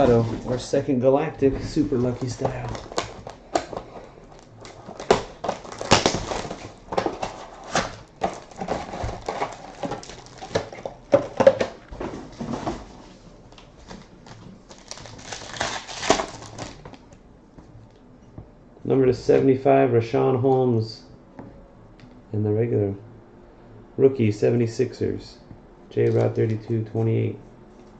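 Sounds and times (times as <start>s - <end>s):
plastic wrapping crinkling: 2.0s - 11.9s, 13.4s - 17.1s
wrapping tearing: 4.3s - 10.9s, 13.8s - 17.0s.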